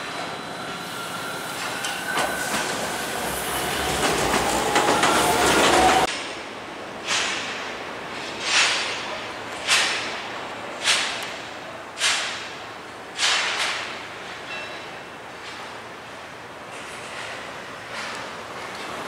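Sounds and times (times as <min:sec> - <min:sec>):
faint train whine: 0:00.0 - 0:07.0
train wheels clattering: 0:01.2 - 0:06.1.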